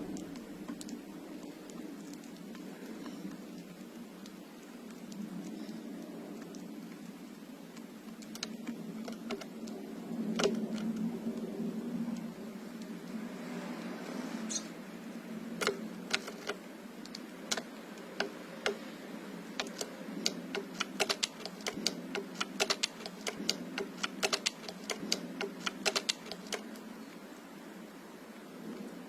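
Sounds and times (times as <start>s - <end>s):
sharp taps and clicks: 10.3s - 10.9s, 15.6s - 18.9s, 19.5s - 26.8s.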